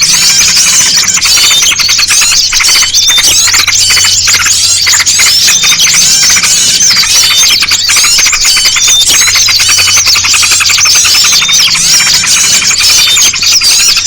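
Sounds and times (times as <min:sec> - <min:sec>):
many small birds chirping: 0:00.0 - 0:14.0.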